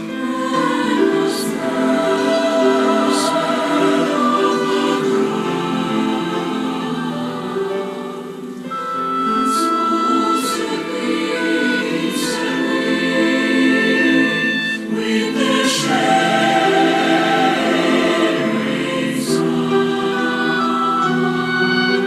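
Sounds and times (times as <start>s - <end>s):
choir singing sustained chords: 0.0s - 22.0s.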